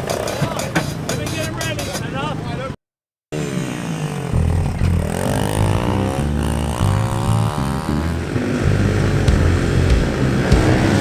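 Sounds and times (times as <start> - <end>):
pit bike engine revving: 3.3 - 11.0.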